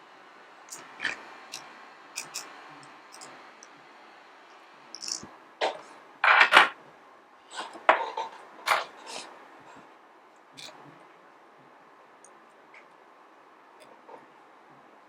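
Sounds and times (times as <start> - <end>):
metal parts clattering: 2.2 - 2.5, 5.0 - 5.2
metal tools clinking: 2.2 - 2.5.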